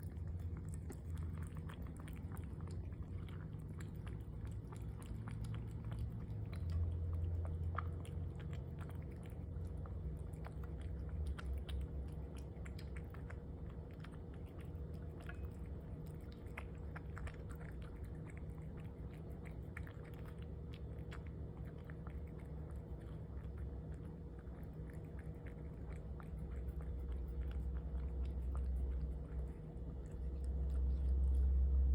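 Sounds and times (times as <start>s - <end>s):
cat chewing crunching: 0.0s - 31.9s
steady low hum: 0.0s - 31.9s.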